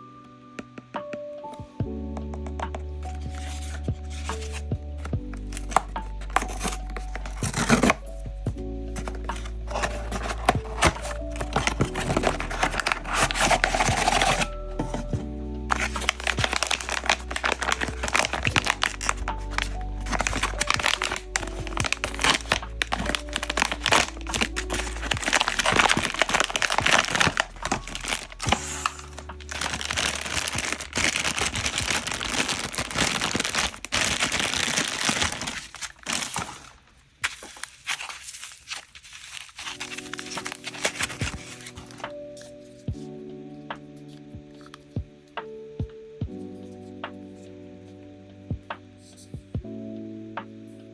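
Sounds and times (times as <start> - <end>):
background music: 0.0 - 50.9
packaging crinkling: 3.2 - 4.6, 5.3 - 8.2, 8.9 - 42.1.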